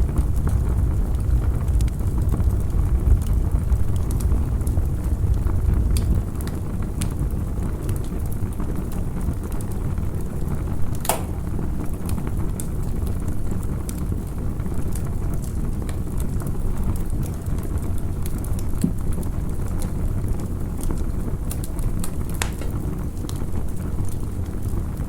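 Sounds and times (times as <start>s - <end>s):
steady low rumble: 0.0s - 7.4s
campfire crackling and popping: 0.0s - 25.0s.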